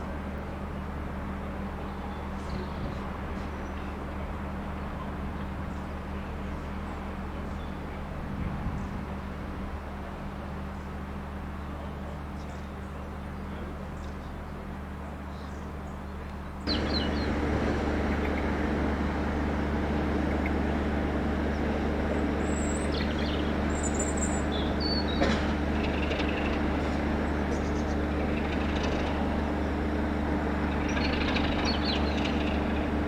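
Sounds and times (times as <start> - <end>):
diesel locomotive engine idling: 0.0 - 33.0
birds chirping: 16.7 - 29.1, 30.7 - 32.9.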